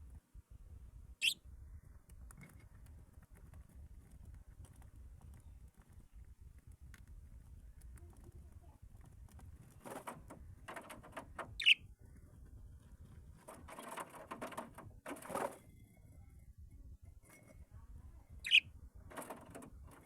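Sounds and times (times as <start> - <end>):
caged birds rustling and scratching: 1.2 - 20.0
bird chirp: 11.6 - 11.9, 18.4 - 18.7.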